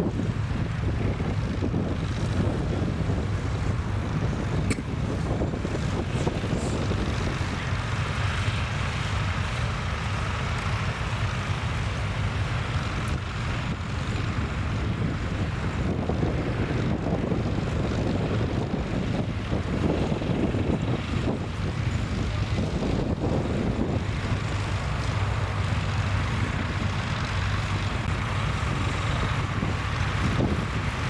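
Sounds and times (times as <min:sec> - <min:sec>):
wind buffeting microphone: 0:00.0 - 0:31.0
tractor engine under load: 0:00.1 - 0:16.9, 0:17.5 - 0:31.0.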